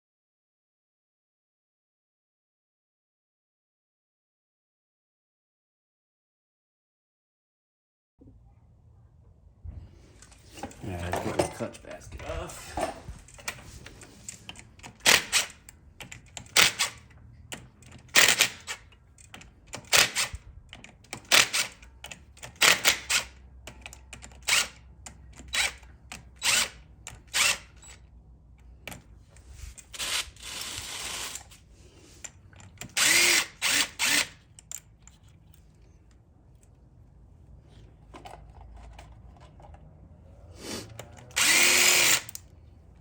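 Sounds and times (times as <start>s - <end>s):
socket ratchet clicking: 14.2s - 28.0s, 32.5s - 35.2s, 40.9s - 42.5s.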